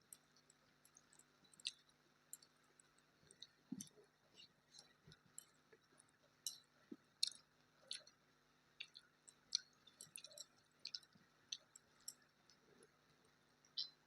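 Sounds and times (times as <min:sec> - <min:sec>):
person chewing food: 0:01.1 - 0:02.5, 0:03.3 - 0:08.2, 0:08.8 - 0:12.9, 0:13.8 - 0:14.0.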